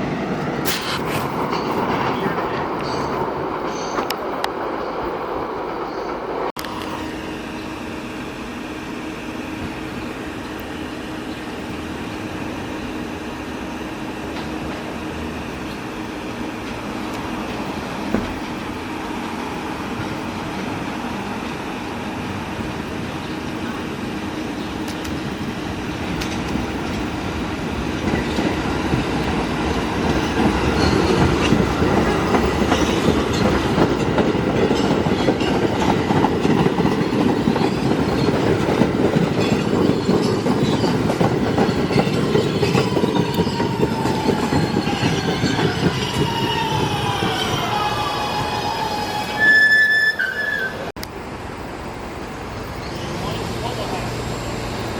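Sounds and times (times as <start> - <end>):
train wheels rumbling on track: 0.0 - 54.9
train brake whine: 6.6 - 14.9, 42.6 - 50.9, 52.8 - 54.9.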